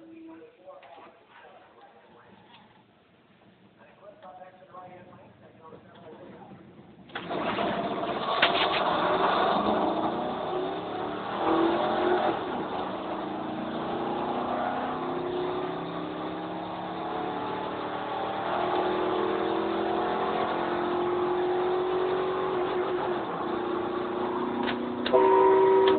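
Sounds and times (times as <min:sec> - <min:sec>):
truck engine accelerating: 0:05.6 - 0:25.9.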